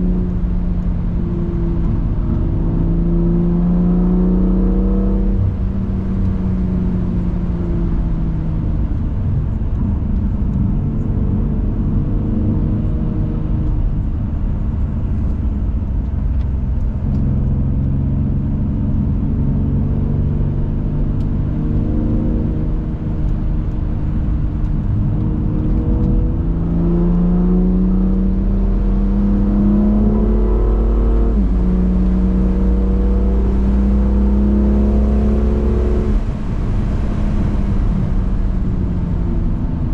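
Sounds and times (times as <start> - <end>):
car engine accelerating: 0.0 - 39.9
low road rumble: 0.0 - 39.9.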